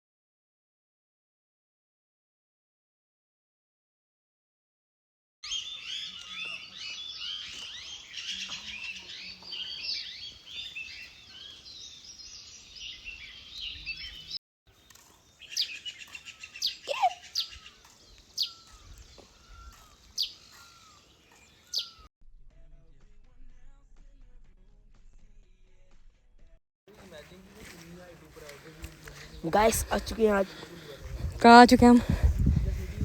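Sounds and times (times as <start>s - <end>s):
sharp falling bird calls: 5.4s - 22.1s
songbirds chirping in chorus: 5.4s - 22.1s, 26.9s - 33.0s.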